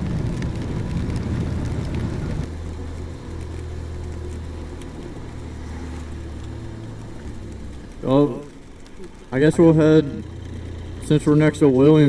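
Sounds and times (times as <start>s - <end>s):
motorcycle engine drone: 0.0s - 12.0s
wind and road rush: 0.0s - 12.0s.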